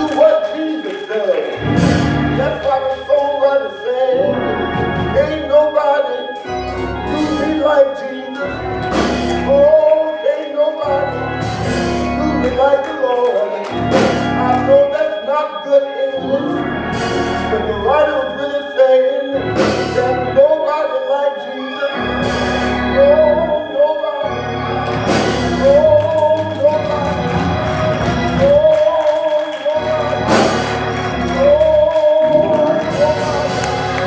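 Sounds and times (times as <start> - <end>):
organ playing chords: 0.0 - 34.0
person singing: 0.0 - 34.0
sharp drum or cymbal hits: 1.7 - 2.4, 30.3 - 30.9.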